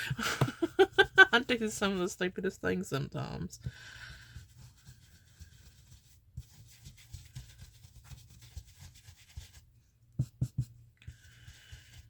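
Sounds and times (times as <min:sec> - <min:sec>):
ink tool scuffing on paper: 0:03.9 - 0:12.0.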